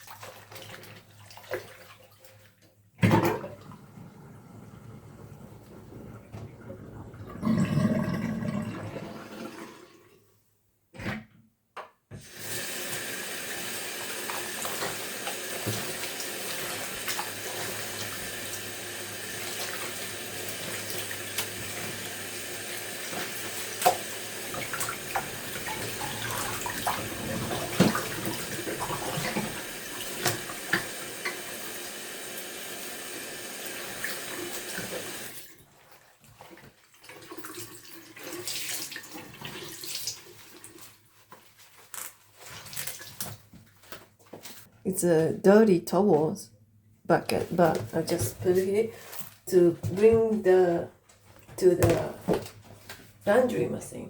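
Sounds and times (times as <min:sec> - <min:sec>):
tap water running into sink: 0:12.2 - 0:35.5.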